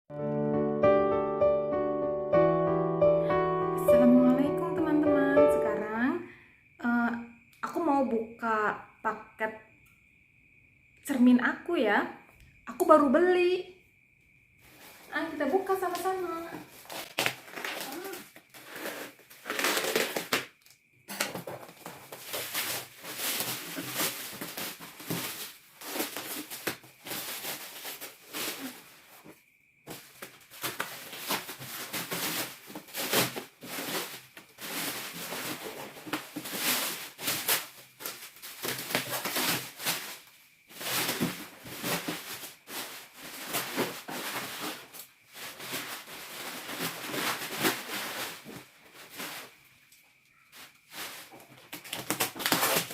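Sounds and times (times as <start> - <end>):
packaging rustling and crinkling: 15.9 - 29.2, 29.9 - 49.6, 50.5 - 52.9.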